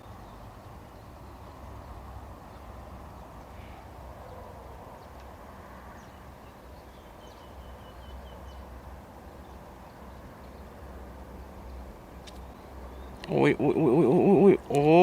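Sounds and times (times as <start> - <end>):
bird calling: 12.5 - 15.0.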